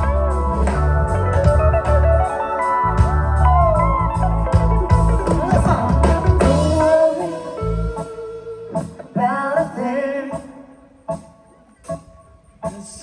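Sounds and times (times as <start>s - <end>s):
live reggae band playing: 0.0s - 13.0s
person singing: 5.3s - 10.8s.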